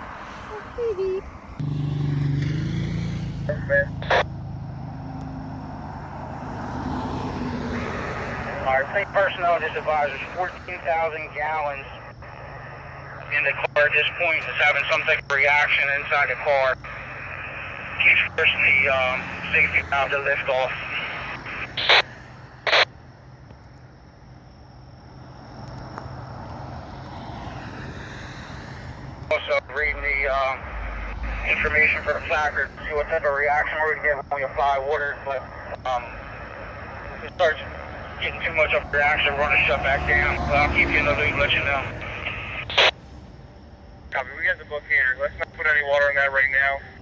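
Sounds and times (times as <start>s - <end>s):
vehicle engine humming: 0.0s - 47.0s
radio channel hiss: 3.4s - 4.3s, 7.7s - 22.9s, 28.0s - 43.2s, 44.1s - 47.0s.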